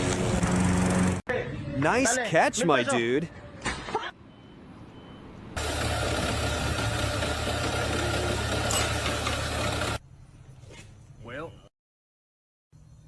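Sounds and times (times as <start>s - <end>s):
machine engine rumbling: 5.6s - 10.0s.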